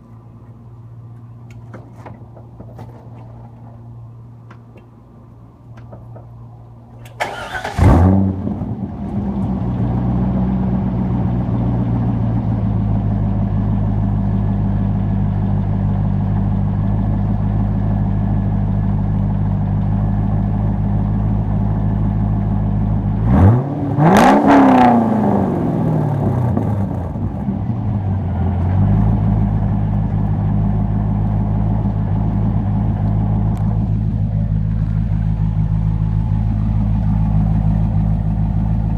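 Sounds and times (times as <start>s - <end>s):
car engine starting and idling: 0.0s - 38.9s
engine revving: 7.2s - 11.5s, 23.2s - 27.5s.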